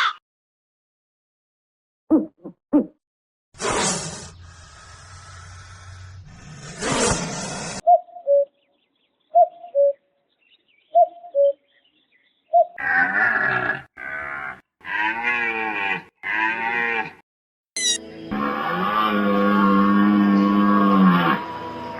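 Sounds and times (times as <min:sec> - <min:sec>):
farm animal calling: 0:17.8 - 0:18.0.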